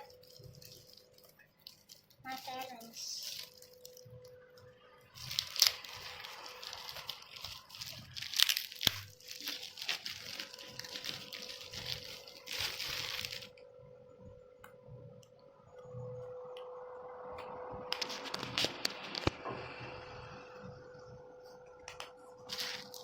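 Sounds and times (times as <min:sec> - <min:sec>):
packaging crinkling and tearing: 0:00.0 - 0:04.4, 0:05.0 - 0:13.6, 0:17.9 - 0:19.4, 0:21.9 - 0:23.0.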